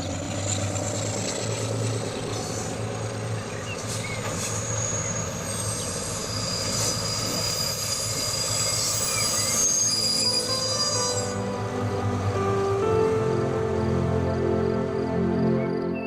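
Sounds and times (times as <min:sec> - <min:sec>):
high wheel squeal: 0:00.0 - 0:12.0.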